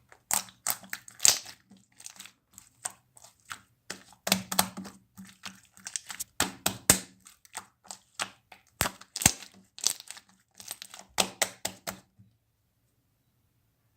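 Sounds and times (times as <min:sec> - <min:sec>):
slime squeezed with crackling pops: 0:00.3 - 0:02.2, 0:05.9 - 0:12.0.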